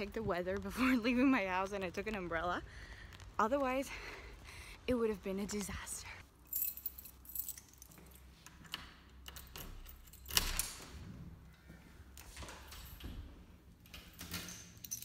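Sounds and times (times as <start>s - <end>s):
keys jangling: 6.4s - 10.9s, 13.8s - 15.0s.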